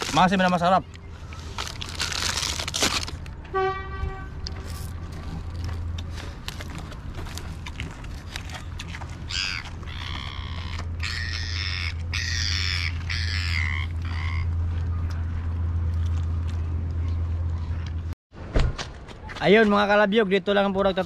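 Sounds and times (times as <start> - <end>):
bird squawking: 9.2 - 14.6.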